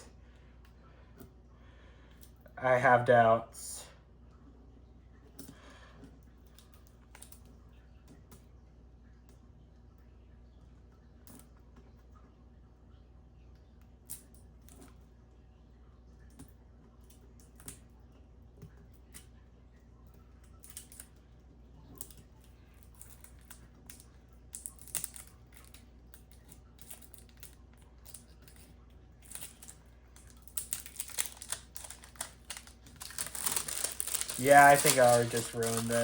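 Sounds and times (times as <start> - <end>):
packaging rustling and crinkling: 24.7 - 25.8, 29.2 - 36.0.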